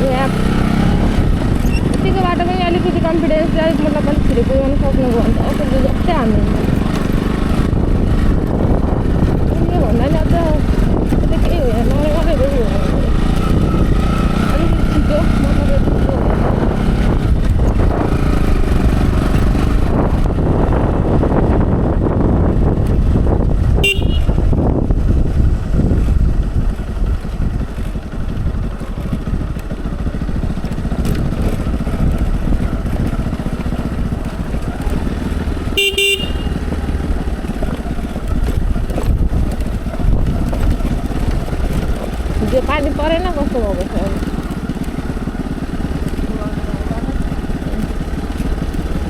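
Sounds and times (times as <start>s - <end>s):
wind noise: 0.0s - 44.7s
motorcycle engine running: 0.0s - 49.0s
motorcycle horn beeps: 23.7s - 24.6s, 35.6s - 36.8s.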